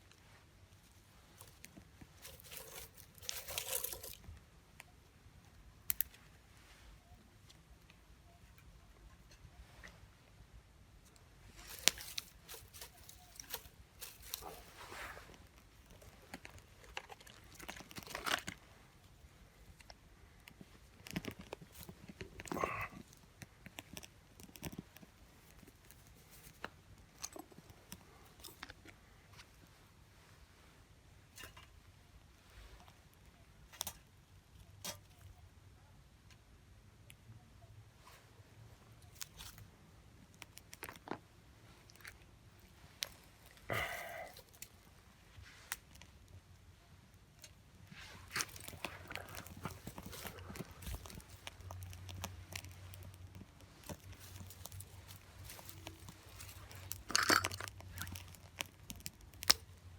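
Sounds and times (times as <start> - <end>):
wood fire crackling: 1.0 - 4.4, 11.2 - 18.9, 42.7 - 59.9
wood fire crackling and popping: 48.3 - 59.8.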